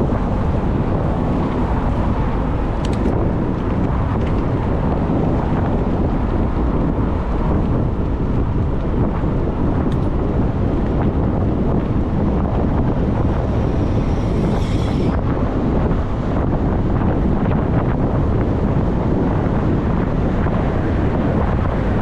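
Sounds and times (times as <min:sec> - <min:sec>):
wind buffeting microphone: 0:00.0 - 0:22.0
faint high squeal: 0:13.4 - 0:15.2.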